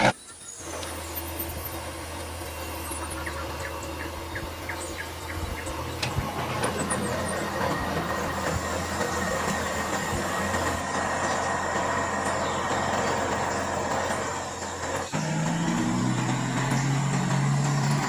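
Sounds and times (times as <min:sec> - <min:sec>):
mechanical running hum: 0:00.0 - 0:18.0.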